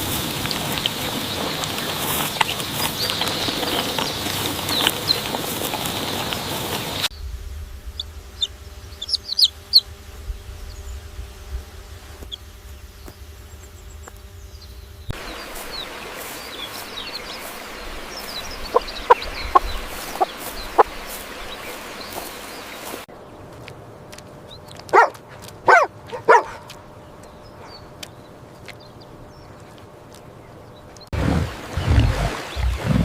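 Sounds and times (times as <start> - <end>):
poultry peeping and clucking: 0.0 - 7.1, 8.0 - 9.9, 15.1 - 23.0.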